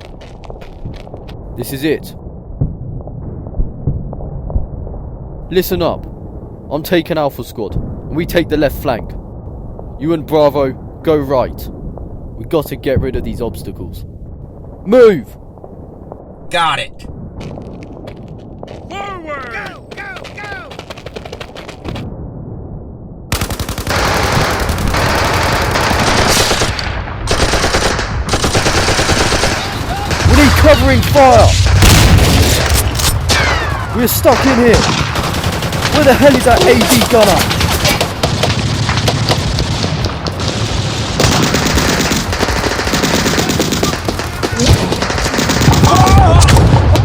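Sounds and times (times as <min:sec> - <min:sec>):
machine-gun fire: 0:23.3 - 0:30.8, 0:33.3 - 0:47.0
gunshots: 0:23.3 - 0:47.0
automatic gunfire bursts: 0:41.2 - 0:46.0.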